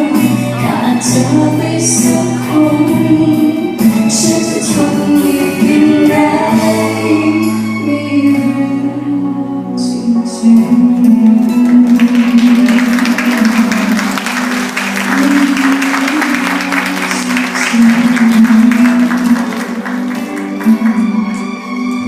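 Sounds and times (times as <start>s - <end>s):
live band holding a chord: 11.0s - 22.0s
crowd clapping: 11.5s - 22.0s.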